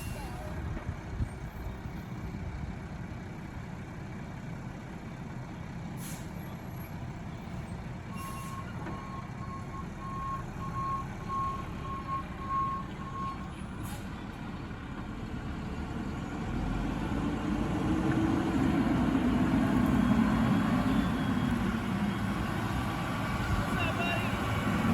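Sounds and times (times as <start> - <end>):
reversing alarm beeping: 8.4 - 13.5.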